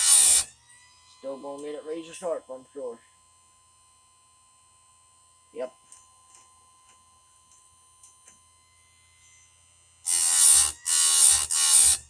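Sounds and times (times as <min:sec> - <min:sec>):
grinding wheel grinding chain: 0:00.0 - 0:00.5, 0:10.1 - 0:12.0.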